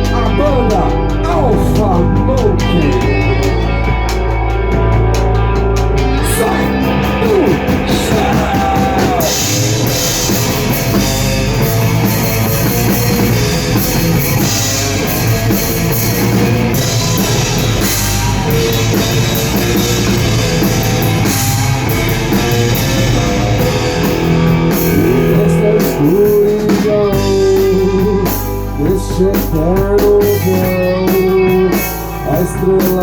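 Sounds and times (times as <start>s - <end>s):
person singing: 0.0s - 4.3s, 6.0s - 11.0s, 24.6s - 33.0s
rock band playing live: 0.0s - 33.0s.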